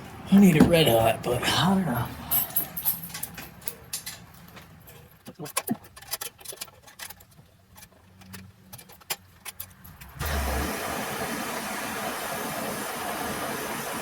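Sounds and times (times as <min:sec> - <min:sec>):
gas torch hissing: 0:10.2 - 0:14.0.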